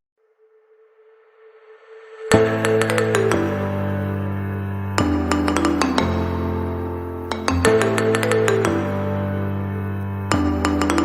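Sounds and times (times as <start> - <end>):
plucked notes over bass: 2.3 - 11.0.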